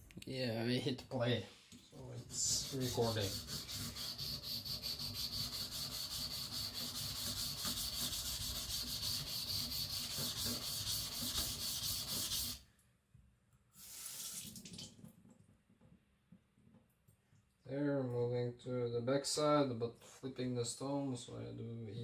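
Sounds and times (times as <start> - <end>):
knife stroking on a whetstone: 2.0 - 12.6.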